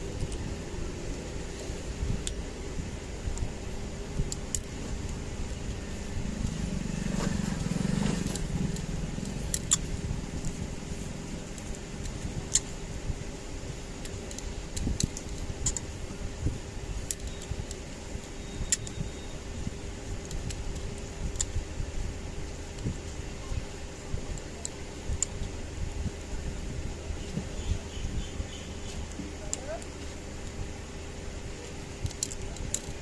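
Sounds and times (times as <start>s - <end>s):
low rumble: 0.0s - 17.1s
steady background hum: 0.0s - 33.0s.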